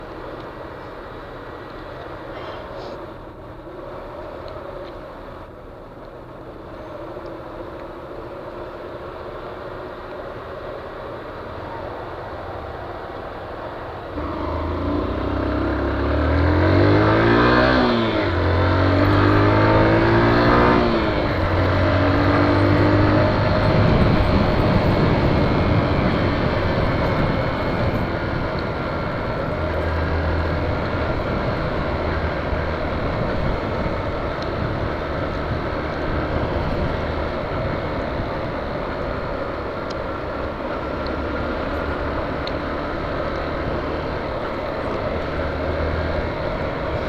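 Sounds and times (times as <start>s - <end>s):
road and wind noise: 0.0s - 47.0s
motorcycle engine revving: 12.5s - 47.0s.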